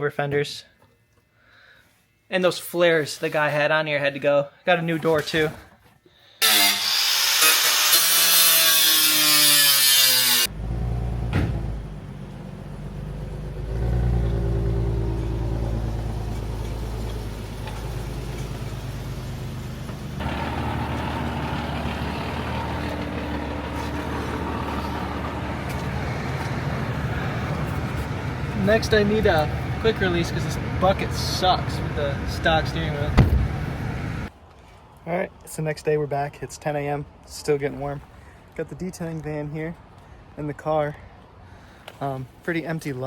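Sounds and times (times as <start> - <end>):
road noise: 10.4 - 43.0
low car engine hum: 10.5 - 34.3.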